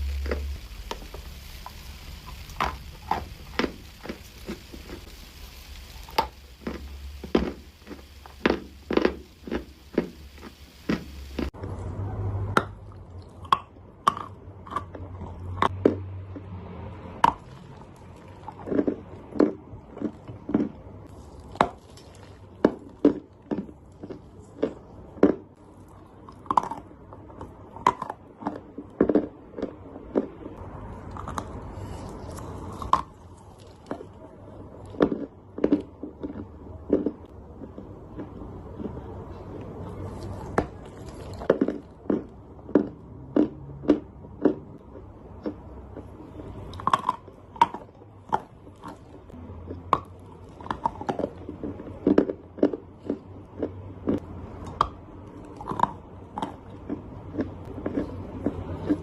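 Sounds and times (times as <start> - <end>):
clay chunks crunching when chewed: 0.0 - 11.9, 12.6 - 16.5, 17.2 - 59.0.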